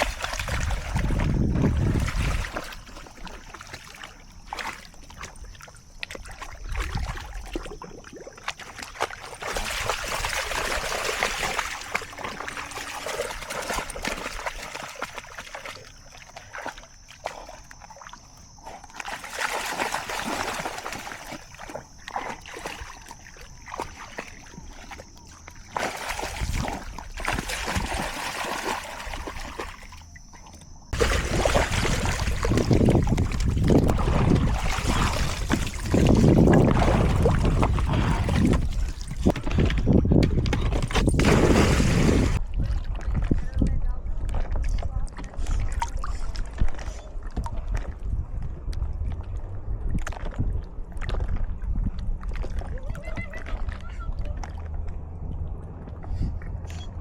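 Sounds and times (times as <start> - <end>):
water rushing: 0.0 - 3.4, 31.0 - 39.4
water trickling and splashing: 0.0 - 57.0.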